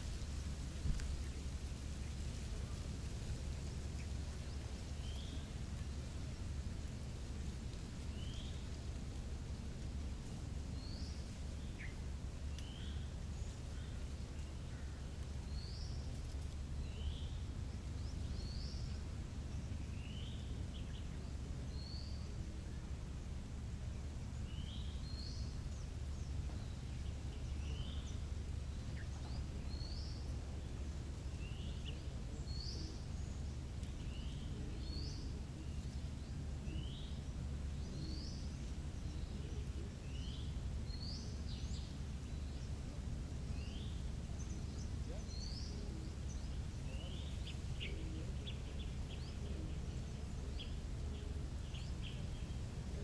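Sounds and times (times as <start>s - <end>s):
steady low rumble: 0.0s - 53.0s
bird chirping: 24.2s - 53.0s.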